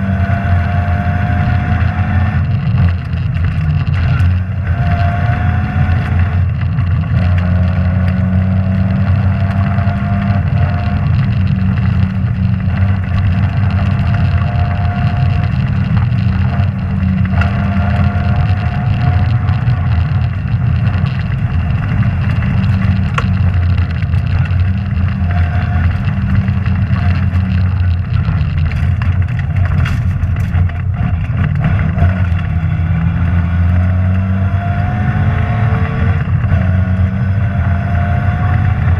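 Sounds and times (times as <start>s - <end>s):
rally car engine at high revs: 0.0s - 38.9s
car knocks and rattles: 2.2s - 33.1s.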